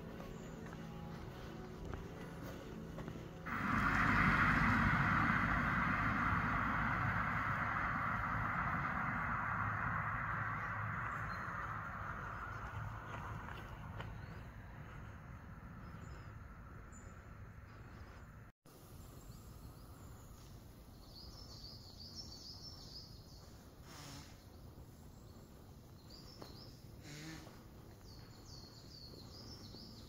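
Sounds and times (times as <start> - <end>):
low outdoor rumble: 0.0 - 21.4
small birds chirping: 10.6 - 30.0.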